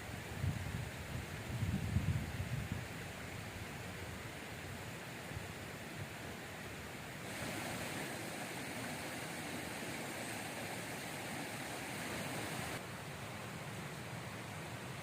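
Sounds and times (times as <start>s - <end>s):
flowing river water rushing: 4.3s - 15.0s.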